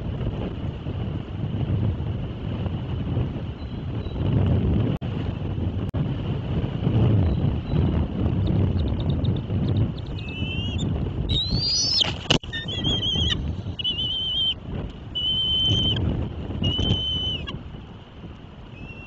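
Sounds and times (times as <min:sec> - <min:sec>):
wind rumbling on microphone: 0:00.0 - 0:19.0
bird whistling: 0:10.0 - 0:14.6, 0:15.2 - 0:16.0, 0:16.6 - 0:17.5, 0:18.8 - 0:19.0.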